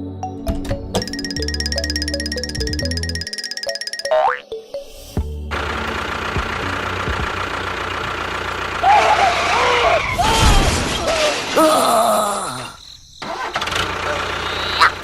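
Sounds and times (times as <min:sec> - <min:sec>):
small engine running: 0:01.3 - 0:04.1, 0:05.4 - 0:10.0, 0:13.4 - 0:15.0
wavering voice-like squeals: 0:08.8 - 0:12.0.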